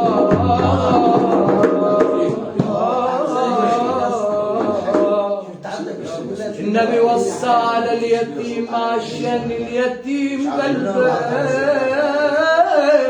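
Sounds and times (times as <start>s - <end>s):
backing music: 0.0s - 2.8s
man singing melismatic vocal line: 0.0s - 5.5s, 6.6s - 13.0s.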